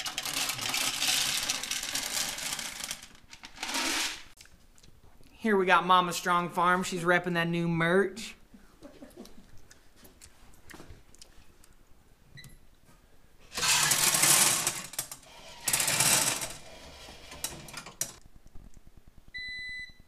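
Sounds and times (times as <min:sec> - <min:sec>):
corn kernels pouring and rattling: 0:00.0 - 0:04.3, 0:13.5 - 0:14.8.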